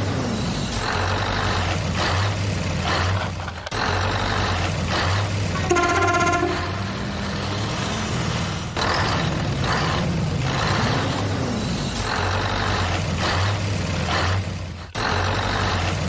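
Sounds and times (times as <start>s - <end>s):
vehicle engine running: 0.0s - 16.0s
horn toot: 5.6s - 7.3s.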